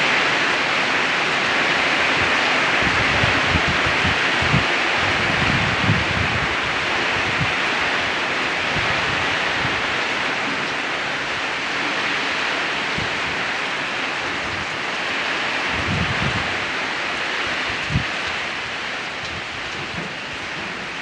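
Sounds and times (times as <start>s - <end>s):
heavy rain hiss: 0.0s - 21.0s
wind buffeting microphone: 2.0s - 10.3s, 15.6s - 21.0s.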